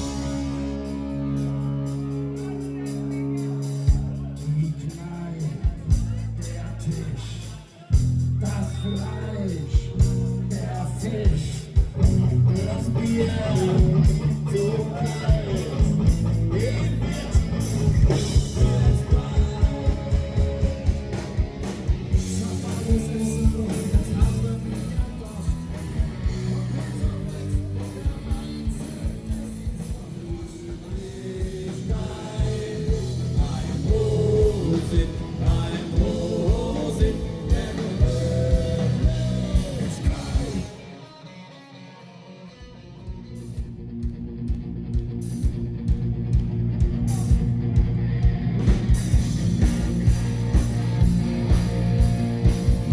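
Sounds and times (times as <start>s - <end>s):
guitar: 0.0s - 52.9s
live band music over pa: 0.0s - 52.9s
steady drum beat: 11.2s - 40.6s, 44.9s - 52.9s.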